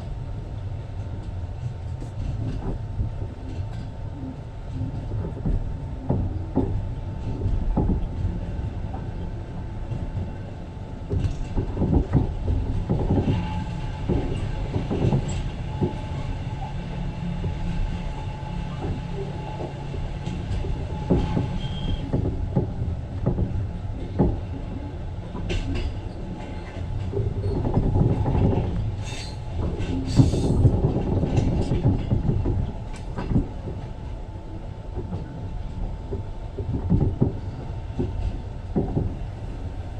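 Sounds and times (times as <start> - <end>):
train rumbling: 0.0 - 39.9
train wheels clattering: 11.0 - 34.2, 34.9 - 39.6
high wheel squeals: 21.5 - 22.0.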